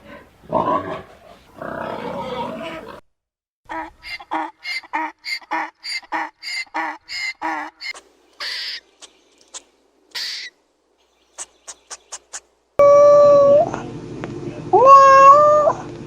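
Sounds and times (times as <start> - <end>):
bird calls: 3.8 - 12.5.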